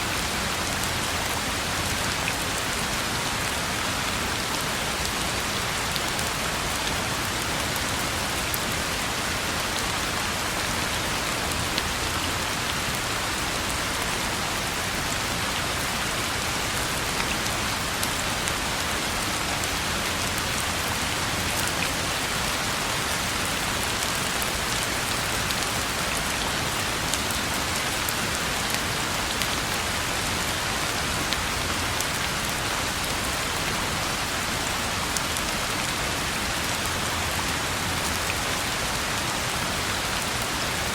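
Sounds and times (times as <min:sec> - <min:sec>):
rain falling on a road: 0:00.0 - 0:40.9.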